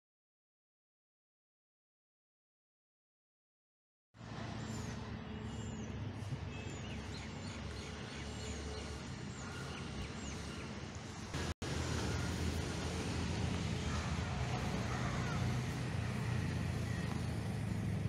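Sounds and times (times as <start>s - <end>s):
low rumble of distant traffic: 4.2s - 18.0s
bird calling: 13.8s - 17.9s.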